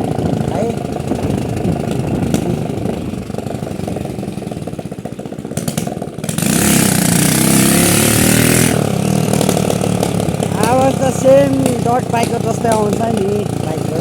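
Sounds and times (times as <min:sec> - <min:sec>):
motorcycle engine open-pipe beat: 0:00.0 - 0:14.0.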